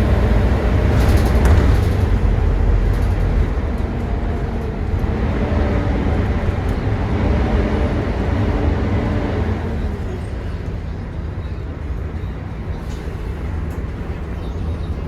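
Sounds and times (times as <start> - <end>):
bus engine and road drone: 0.0 - 15.0.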